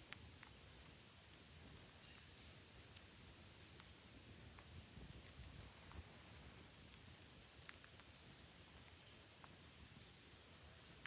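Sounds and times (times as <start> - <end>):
faint clicks: 0.0 - 11.0
bird chirping: 1.9 - 4.0, 5.9 - 6.6, 7.8 - 11.0.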